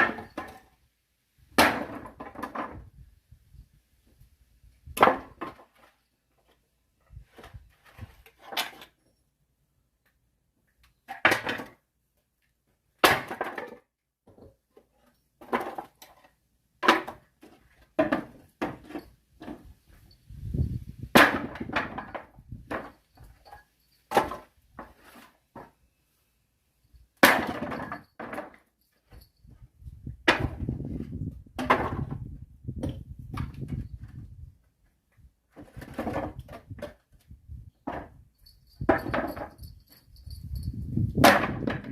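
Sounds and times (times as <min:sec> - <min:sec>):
axe chopping firewood: 0:00.0 - 0:00.7, 0:01.6 - 0:02.8, 0:05.0 - 0:05.6, 0:13.0 - 0:13.8, 0:16.8 - 0:17.2, 0:21.1 - 0:23.0, 0:27.2 - 0:28.6, 0:30.2 - 0:30.7, 0:31.6 - 0:32.1, 0:41.1 - 0:41.9.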